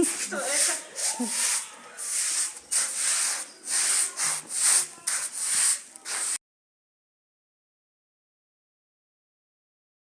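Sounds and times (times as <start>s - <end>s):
scrubbing wet carpet by hand: 0.1s - 6.4s.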